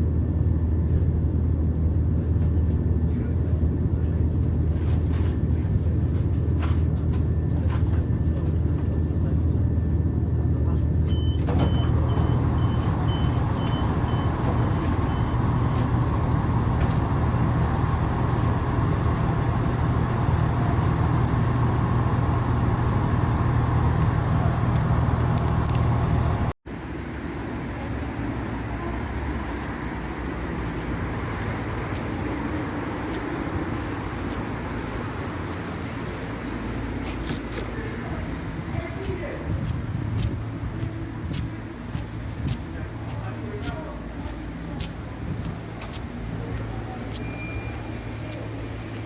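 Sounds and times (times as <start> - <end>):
train running rumble: 0.0 - 49.0
short high beeps: 47.2 - 48.0.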